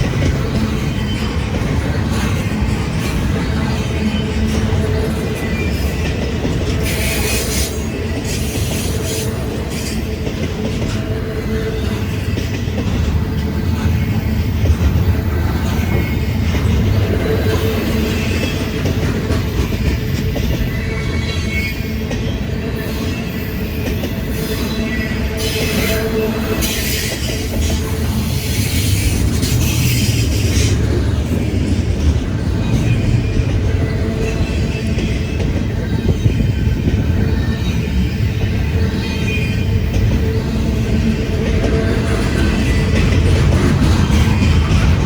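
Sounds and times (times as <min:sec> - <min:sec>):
freight train rumbling: 0:00.0 - 0:45.0
wheel clatter over rail joints: 0:26.5 - 0:45.0.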